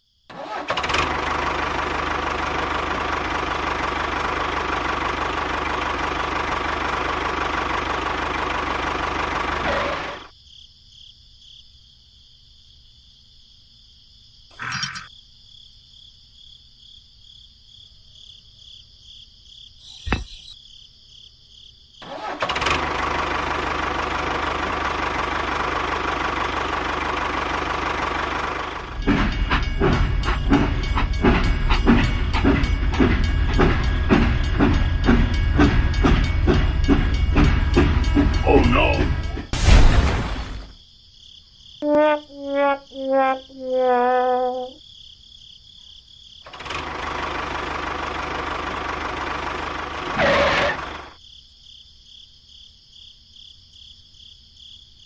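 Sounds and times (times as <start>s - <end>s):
brief loud burst: 39.5s - 40.7s.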